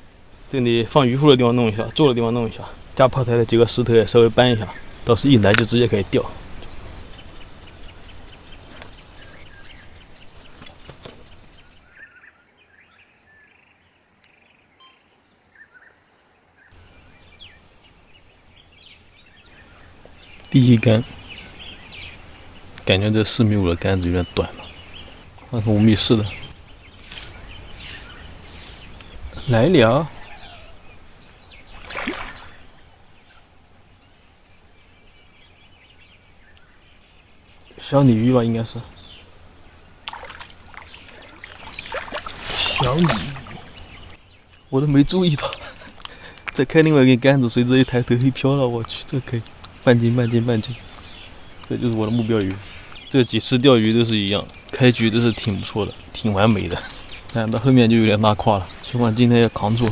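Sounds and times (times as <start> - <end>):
high-pitched insect trill: 0.5 - 59.9
bird chirps: 6.6 - 13.8, 14.4 - 16.0, 16.6 - 31.8
fish splashing in water: 31.7 - 32.6, 40.0 - 44.1
faint clicks: 45.4 - 46.6.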